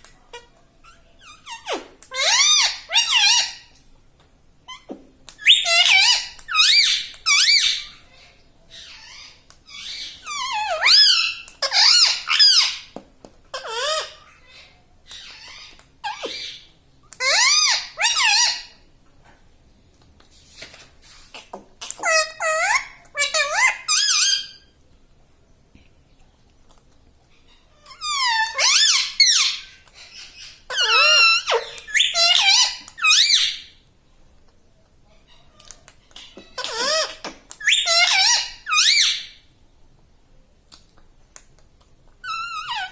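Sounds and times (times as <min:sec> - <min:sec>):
parrot squeaky calls: 0:00.2 - 0:03.8, 0:04.7 - 0:18.8, 0:21.2 - 0:24.8, 0:27.3 - 0:33.8, 0:35.2 - 0:39.5, 0:42.2 - 0:42.9.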